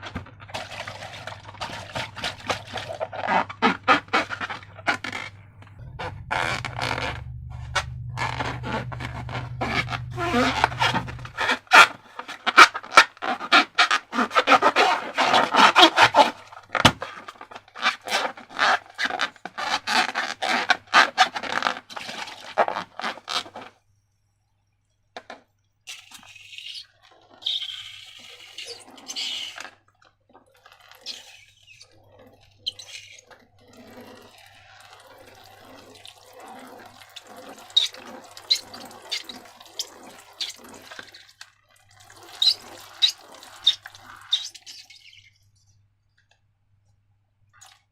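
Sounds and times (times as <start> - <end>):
slime squelching: 0.0 - 23.7, 25.9 - 45.4
hissy wet bursts: 42.0 - 45.2.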